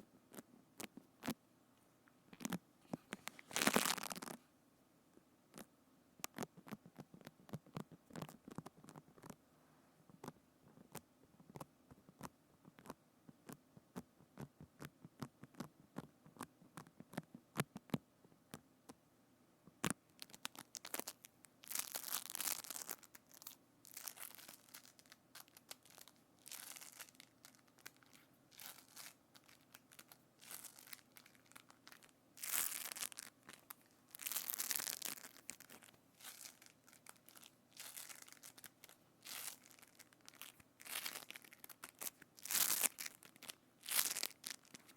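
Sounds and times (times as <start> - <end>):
crinkling rustles and squishes: 2.3 - 4.4, 19.8 - 44.9.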